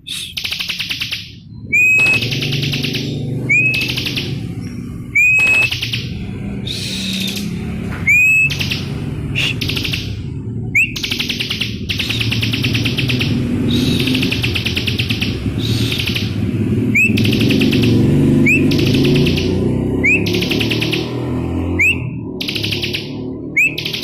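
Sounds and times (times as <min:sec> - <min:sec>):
bird trilling: 0:00.0 - 0:24.0
bird rising whistles: 0:01.7 - 0:02.5, 0:03.5 - 0:04.3, 0:05.1 - 0:05.8, 0:08.1 - 0:08.6, 0:10.7 - 0:11.1, 0:16.9 - 0:17.3, 0:20.0 - 0:20.3, 0:21.8 - 0:22.2, 0:23.5 - 0:24.0.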